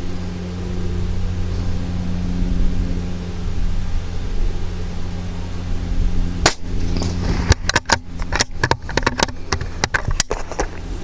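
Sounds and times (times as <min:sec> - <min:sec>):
steady low hum: 0:00.0 - 0:11.0
rifle shot: 0:06.4 - 0:07.0
sharp clicks and knocks: 0:06.5 - 0:10.8.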